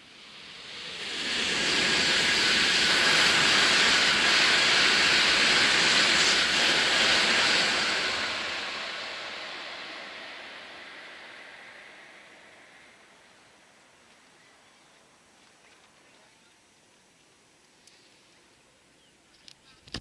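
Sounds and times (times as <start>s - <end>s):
high-speed train passing: 0.0s - 15.4s.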